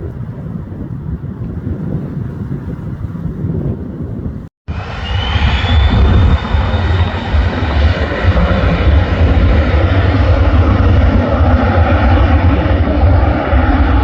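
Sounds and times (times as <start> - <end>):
airliner engine rumble: 0.0 - 14.0.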